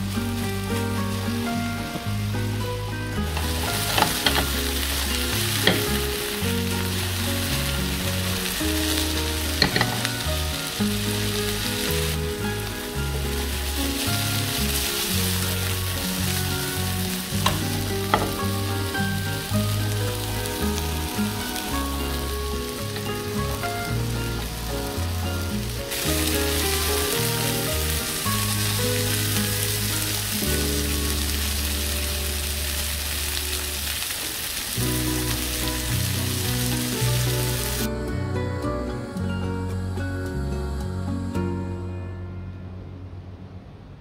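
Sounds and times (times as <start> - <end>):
kebabs sizzling in oil: 0.0 - 37.9.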